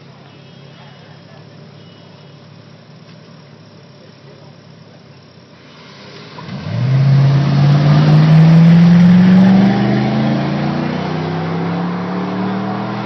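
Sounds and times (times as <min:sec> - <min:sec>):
car engine accelerating: 0:05.6 - 0:13.0.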